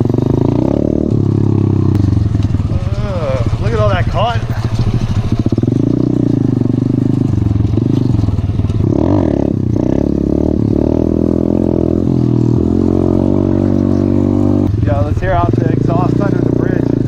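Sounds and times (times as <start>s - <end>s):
pit bike engine running: 0.0s - 17.0s.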